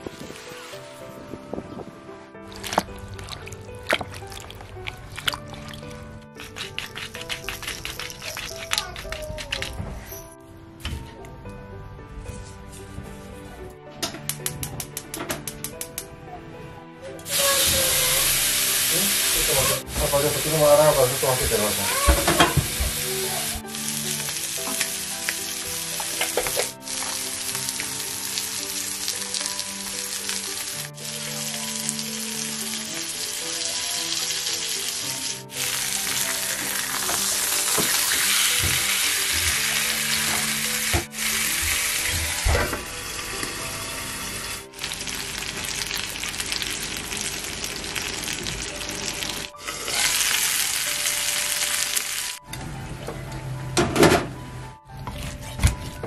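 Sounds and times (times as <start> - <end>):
soft background music: 0.0 - 56.0
chicken sizzling in oil: 17.3 - 52.4.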